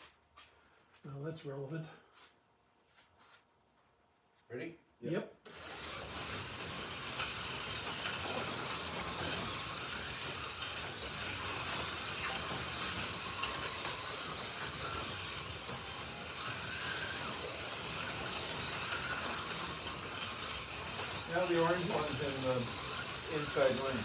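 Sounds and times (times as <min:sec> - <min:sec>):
slot car motors whining: 0:05.5 - 0:24.0.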